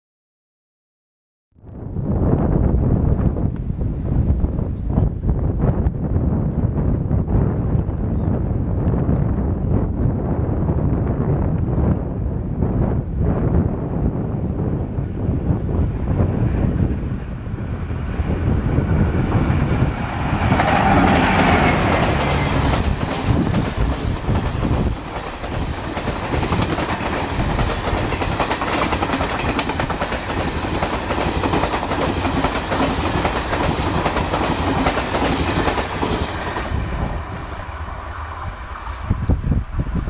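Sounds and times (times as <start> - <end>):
train wheels clattering over rail joints: 20.0 - 36.6.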